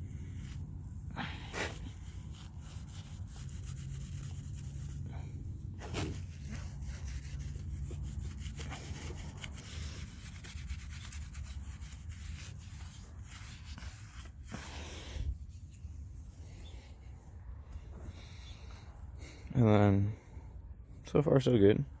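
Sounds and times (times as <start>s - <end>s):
scraping and rubbing on surface: 0.0s - 16.6s.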